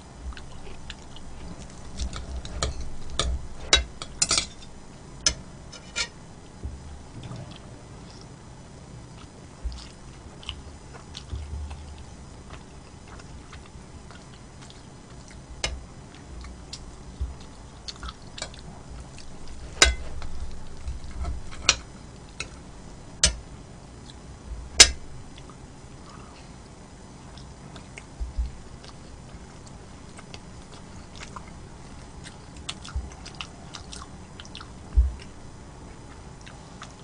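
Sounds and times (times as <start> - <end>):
person chewing: 0.3 - 6.0, 9.1 - 22.7, 27.2 - 37.0
utensils clinking on a dish: 2.0 - 4.7.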